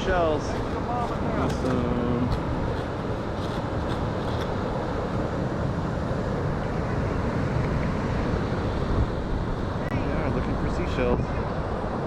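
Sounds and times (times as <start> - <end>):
surf: 0.0 - 12.0
wind buffeting microphone: 0.0 - 12.0.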